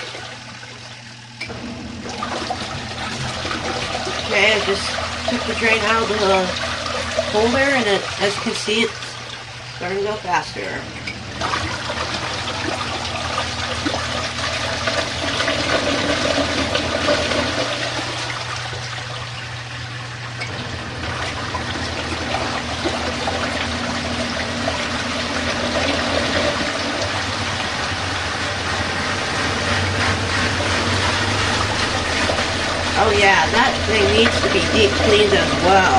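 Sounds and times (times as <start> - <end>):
water gushing from drain hose: 0.0 - 35.9
low hum: 18.4 - 35.9.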